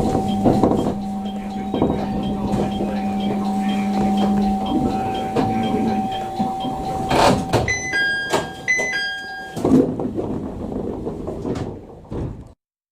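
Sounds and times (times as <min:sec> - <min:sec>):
two-note door chime: 0:00.0 - 0:09.7
steady electrical hum: 0:00.0 - 0:12.0
sliding doors thumping: 0:00.0 - 0:12.6.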